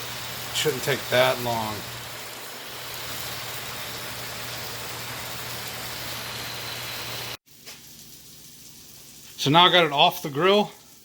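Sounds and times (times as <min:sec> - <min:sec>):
fan humming: 0:00.0 - 0:07.8
steak sizzling on griddle: 0:00.0 - 0:11.0.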